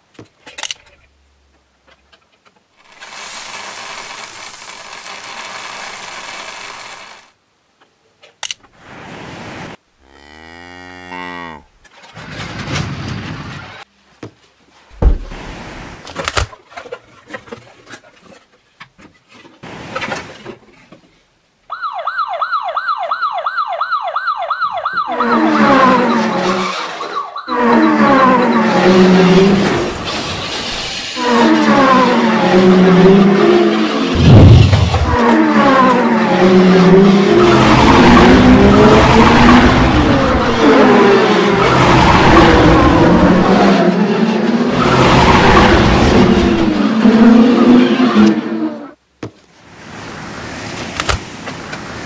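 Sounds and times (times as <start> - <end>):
noise bursts: 2.8 - 7.4, 28.8 - 35.2
fast rising and falling siren: 21.7 - 30.0, 31.2 - 49.0
falling tone sweep: 31.2 - 49.0.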